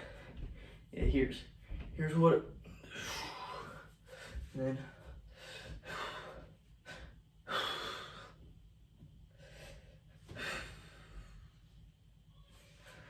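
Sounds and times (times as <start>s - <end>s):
man breathing: 0.0s - 0.9s, 2.6s - 8.5s, 9.3s - 11.9s.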